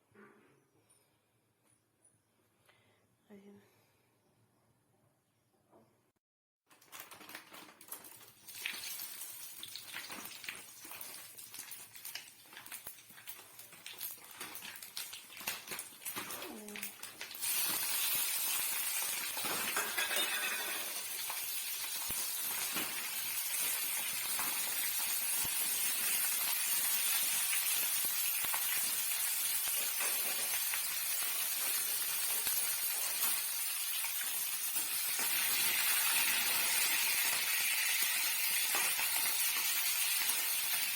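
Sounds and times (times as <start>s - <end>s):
food sizzling in hot oil: 7.8s - 40.9s
kitchen clicks and knocks: 19.4s - 21.1s.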